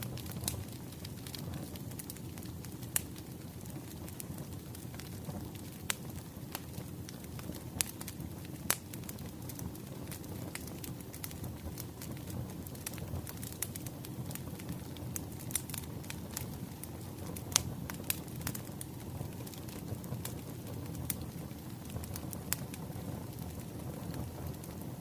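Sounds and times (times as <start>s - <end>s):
firewood crackling and popping: 0.0s - 25.0s
low rumble of flame: 0.0s - 25.0s.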